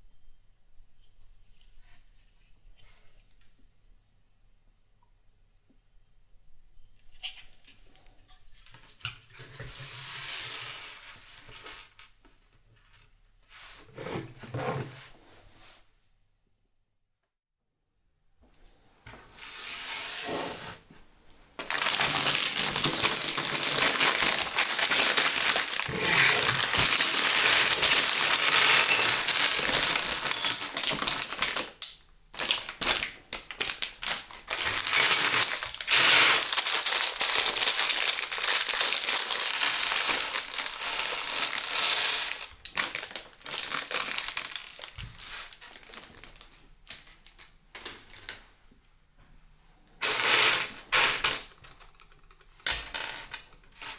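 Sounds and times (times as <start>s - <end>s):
plastic bricks clattering: 21.6s - 46.4s
plastic bag crinkling and tearing: 21.6s - 47.5s.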